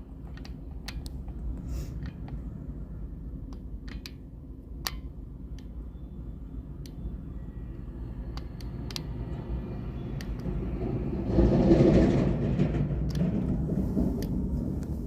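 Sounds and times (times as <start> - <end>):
sharp clicks and clanks: 0.2 - 2.4, 8.3 - 15.0
excavator diesel engine rumbling: 5.2 - 15.0.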